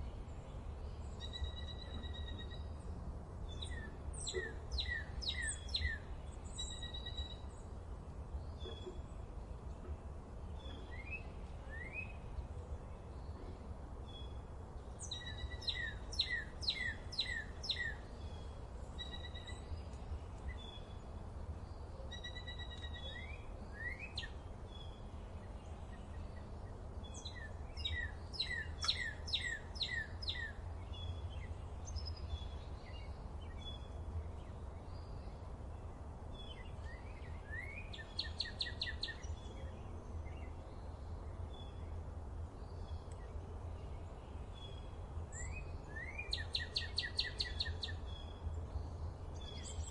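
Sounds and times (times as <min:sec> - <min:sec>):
birds chirping: 0:10.5 - 0:42.0.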